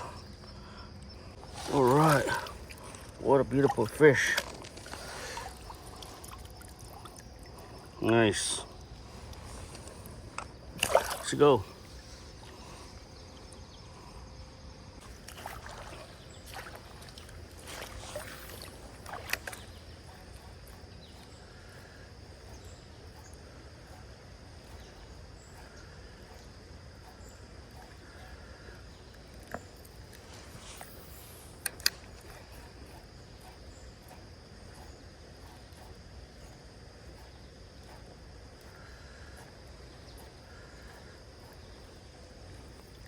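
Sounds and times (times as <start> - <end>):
insect drone: 0.0 - 43.0
water splashing: 1.4 - 8.0, 9.0 - 12.8, 15.0 - 20.6.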